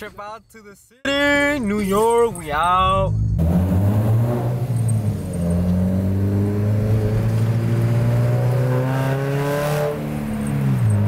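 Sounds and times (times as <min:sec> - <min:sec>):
car engine from inside cabin: 0:03.1 - 0:11.0.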